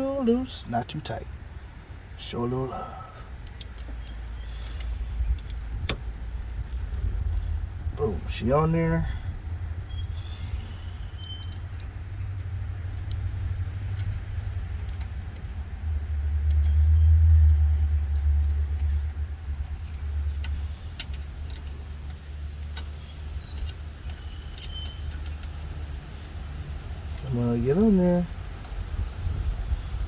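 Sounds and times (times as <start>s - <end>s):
low rumble: 4.0s - 27.4s.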